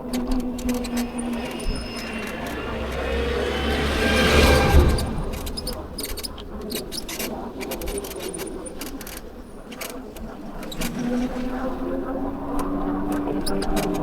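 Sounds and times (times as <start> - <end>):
vehicle passing: 0.0 - 8.9.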